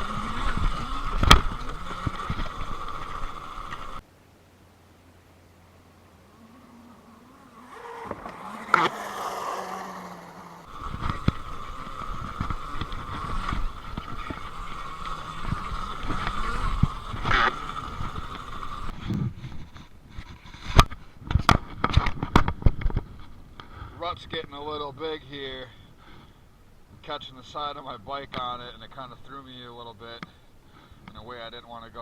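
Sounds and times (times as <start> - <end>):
bike rattling over dirt: 0.0 - 4.0, 7.0 - 23.4
electric motor whine: 0.0 - 4.0, 6.0 - 19.0.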